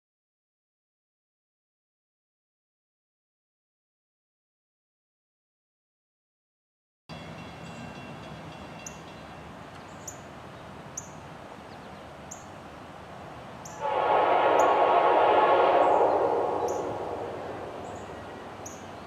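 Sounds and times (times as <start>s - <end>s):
train horn: 13.8s - 19.0s.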